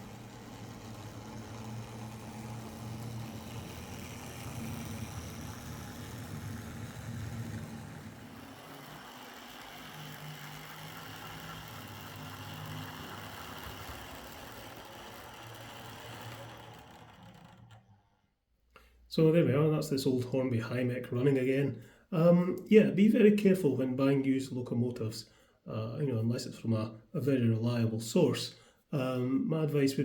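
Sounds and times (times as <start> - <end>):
wheel and rail noise: 0.0 - 18.3
model train motor hum: 0.0 - 18.4.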